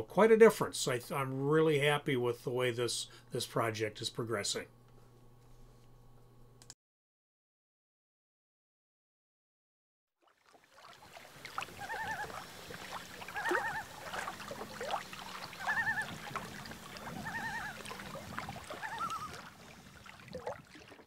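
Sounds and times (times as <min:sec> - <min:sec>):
bird wavering call: 0:11.6 - 0:19.8.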